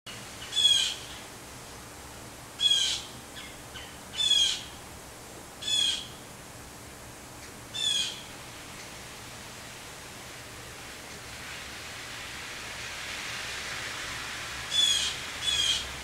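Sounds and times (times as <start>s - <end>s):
steady hiss: 0.1s - 16.0s
bird calling: 2.6s - 4.7s, 5.6s - 6.1s, 7.7s - 8.3s, 14.7s - 15.9s.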